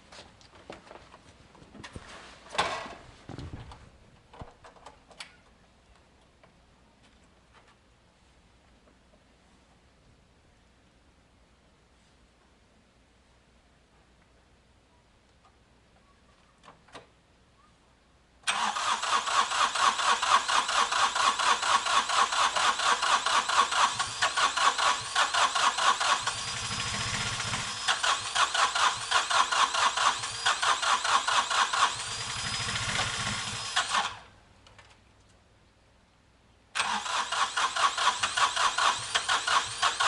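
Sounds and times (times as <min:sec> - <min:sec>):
electric starter whine: 0:18.5 - 0:34.3, 0:36.8 - 0:40.0
tractor engine cranking: 0:18.5 - 0:34.9, 0:36.8 - 0:40.0.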